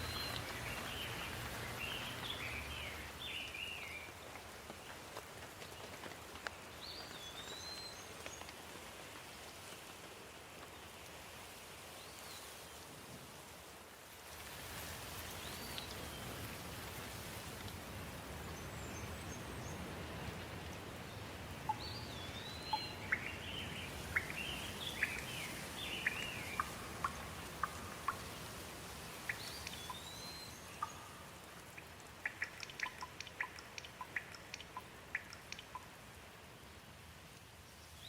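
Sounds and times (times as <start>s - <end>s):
birds chirping: 0.0s - 4.2s, 21.0s - 35.9s
steady rain: 0.0s - 38.0s.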